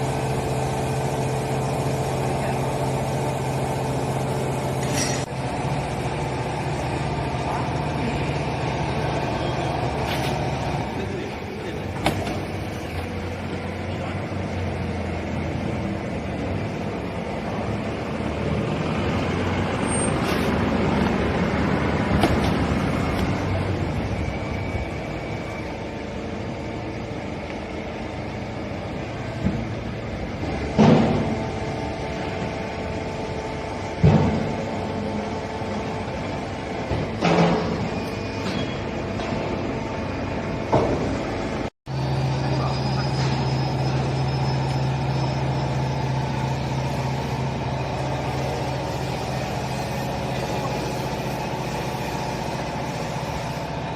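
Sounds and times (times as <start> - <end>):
loud machine clunk: 22.0 - 23.3, 30.5 - 31.6, 33.9 - 34.8, 36.8 - 39.6.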